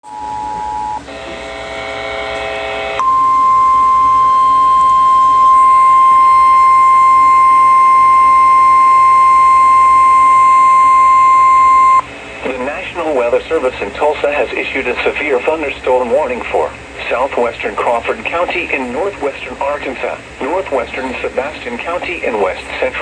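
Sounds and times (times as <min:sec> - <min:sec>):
emergency alert tone: 0:00.0 - 0:12.1.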